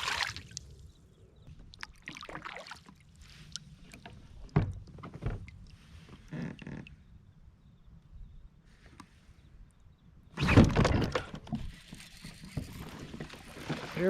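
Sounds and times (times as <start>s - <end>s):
fish splashing in water: 0.0s - 0.7s, 1.8s - 3.7s.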